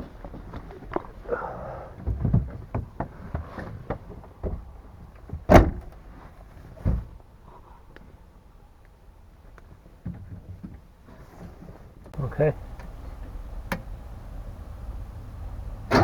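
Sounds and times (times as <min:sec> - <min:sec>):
clunks and knocks: 0:00.0 - 0:07.2, 0:15.2 - 0:16.0
dull thump: 0:05.3 - 0:06.0.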